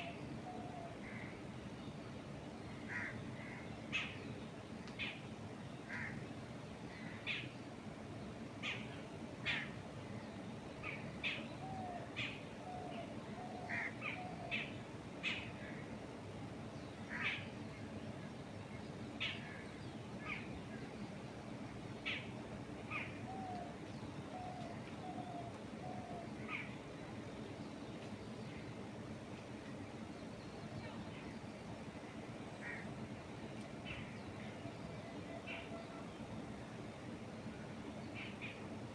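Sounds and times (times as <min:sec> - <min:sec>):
wind in trees: 0:00.0 - 0:38.9.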